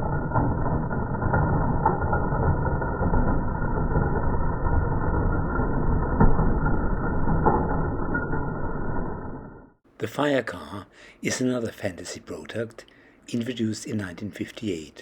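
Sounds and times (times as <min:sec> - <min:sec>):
toy train motor rumbling: 0:00.0 - 0:08.1.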